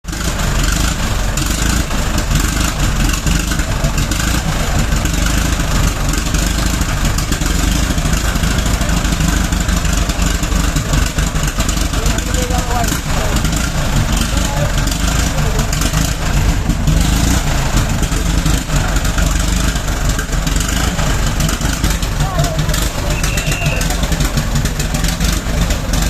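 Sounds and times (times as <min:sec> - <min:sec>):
car engine running roughly: 0:00.0 - 0:26.0.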